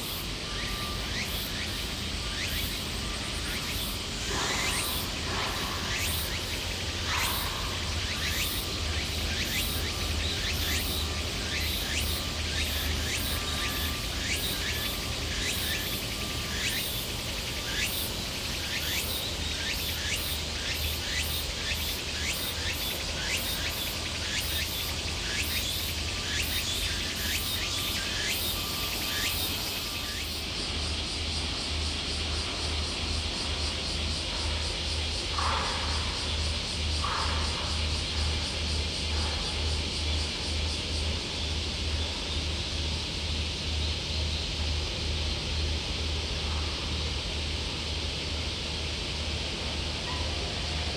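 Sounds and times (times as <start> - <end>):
steady hiss: 0.0 - 50.9.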